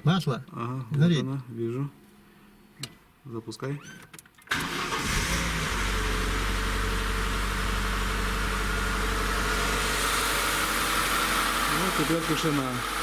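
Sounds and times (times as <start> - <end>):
car engine idling: 4.6 - 13.0.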